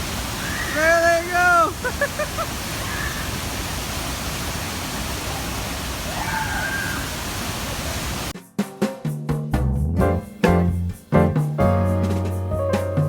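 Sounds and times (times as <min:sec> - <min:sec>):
waterfall rushing: 0:00.0 - 0:08.3.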